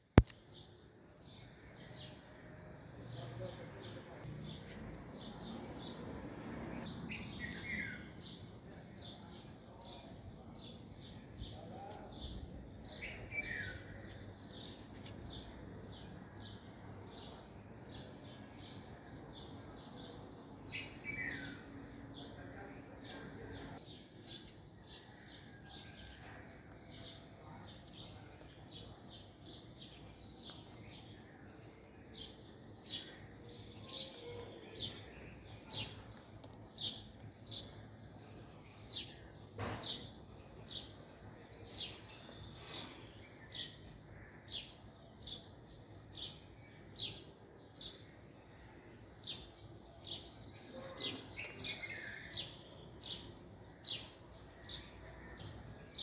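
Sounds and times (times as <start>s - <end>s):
small birds chirping: 0.1s - 56.0s
birds twittering: 27.5s - 56.0s.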